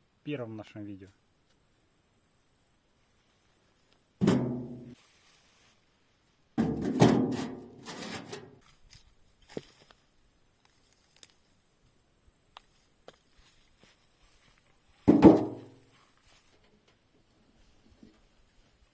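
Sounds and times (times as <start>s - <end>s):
bricks clattering into metal wheelbarrow: 6.6s - 8.6s.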